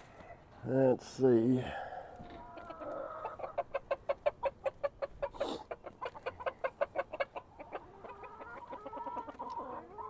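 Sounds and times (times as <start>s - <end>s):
chickens clucking: 2.0s - 10.0s.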